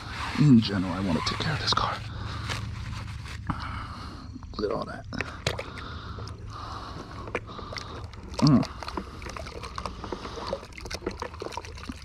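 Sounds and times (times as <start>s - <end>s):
brush scrubbing a car wheel: 0.0s - 3.5s.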